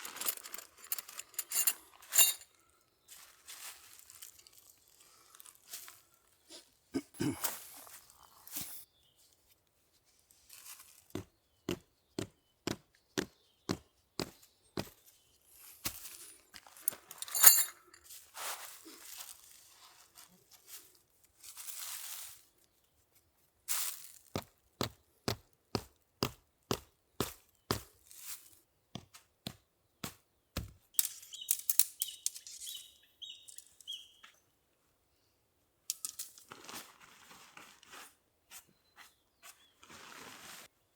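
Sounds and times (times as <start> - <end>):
camp gear rustling and clinking: 0.0 - 6.0, 7.0 - 8.9, 15.4 - 22.3, 30.9 - 34.0, 35.9 - 37.2.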